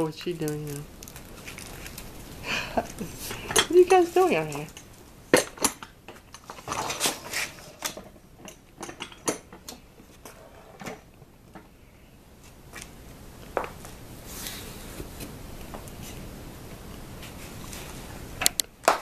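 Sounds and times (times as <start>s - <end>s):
faint steady hiss: 0.0s - 19.0s
tableware clicking and clinking: 3.3s - 11.0s.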